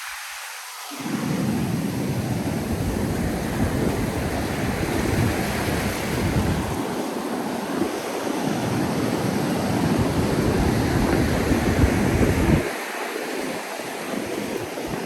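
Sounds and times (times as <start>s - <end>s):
ocean surf on beach: 0.0s - 15.0s
wind buffeting microphone: 1.1s - 15.0s.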